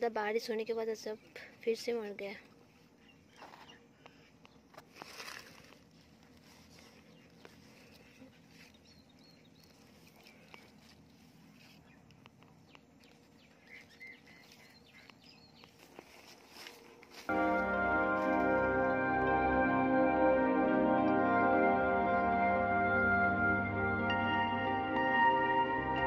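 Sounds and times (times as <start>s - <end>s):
faint birds chirping: 0.0s - 17.3s
soft rustle: 4.7s - 17.3s.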